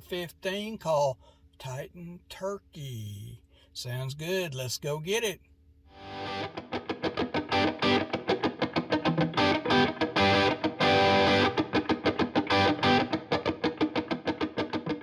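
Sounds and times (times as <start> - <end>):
fast electric guitar music: 6.0 - 15.0.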